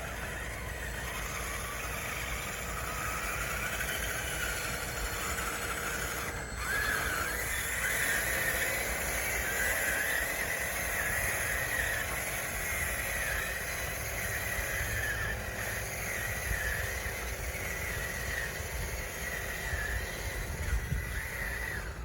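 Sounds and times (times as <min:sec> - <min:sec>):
toy bulldozer motor whining: 0:00.0 - 0:22.0.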